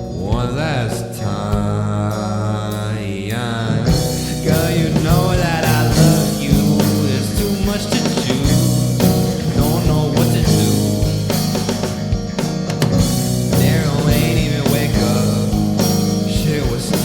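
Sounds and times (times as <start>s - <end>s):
rock band playing: 3.8s - 17.0s.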